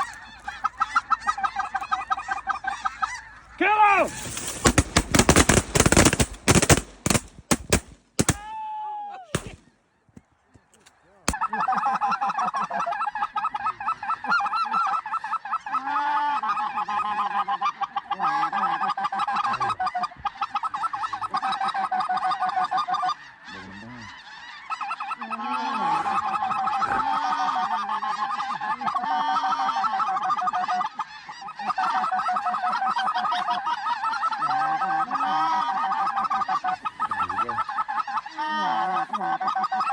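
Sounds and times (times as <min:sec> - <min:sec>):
geese honking: 0:00.0 - 0:08.5, 0:09.3 - 0:39.9
shotgun blasts: 0:04.1 - 0:08.5, 0:09.3 - 0:09.7.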